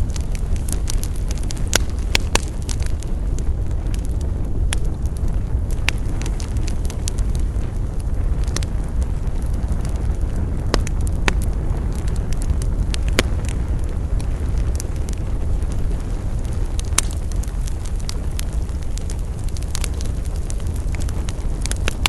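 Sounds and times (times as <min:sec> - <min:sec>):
campfire flames rushing: 0:00.0 - 0:22.0
fire crackles and pops: 0:00.0 - 0:22.0.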